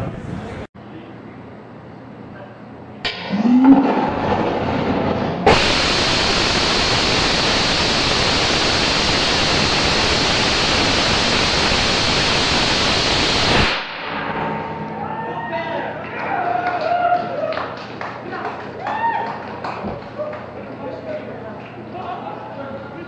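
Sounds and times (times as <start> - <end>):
rocket engine roaring: 3.1 - 15.0.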